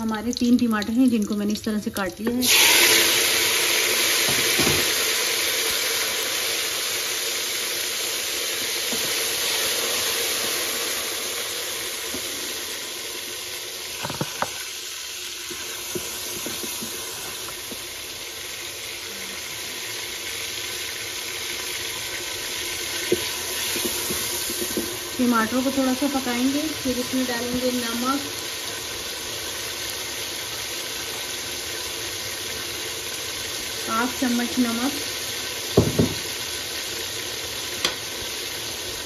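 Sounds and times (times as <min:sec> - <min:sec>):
tomatoes sizzling in hot oil: 0:00.0 - 0:39.0
wooden spatula knocking on pot: 0:14.0 - 0:14.5, 0:35.8 - 0:36.2.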